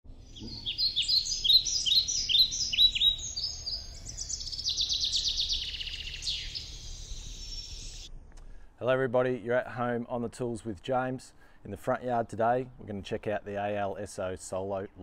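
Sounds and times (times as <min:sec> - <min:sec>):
birds singing: 0:00.1 - 0:08.1.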